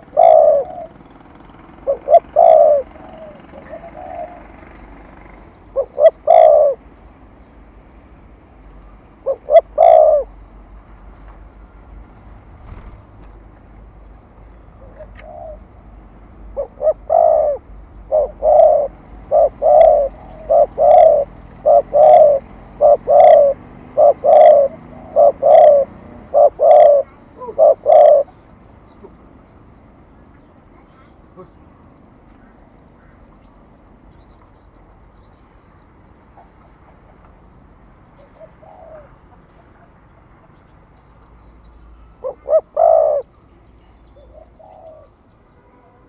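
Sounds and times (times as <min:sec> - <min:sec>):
dove cooing: 0:00.0 - 0:06.9, 0:09.1 - 0:10.5, 0:14.8 - 0:15.8, 0:16.4 - 0:29.2, 0:38.2 - 0:39.8, 0:42.0 - 0:43.5, 0:44.2 - 0:46.0.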